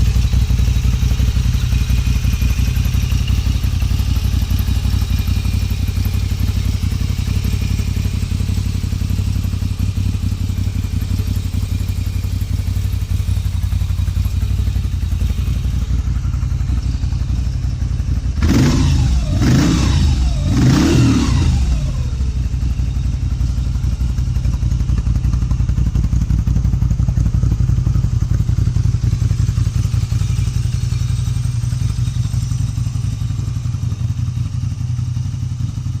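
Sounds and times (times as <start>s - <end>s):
motorcycle engine idling: 0.0s - 36.0s
motorcycle throttle revs: 18.3s - 22.6s.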